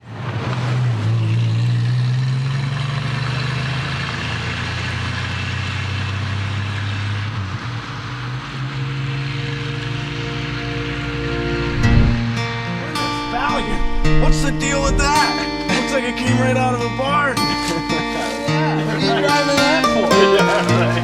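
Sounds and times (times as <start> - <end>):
wind and road noise: 0.0 - 15.2
vehicle engine humming: 1.0 - 21.0.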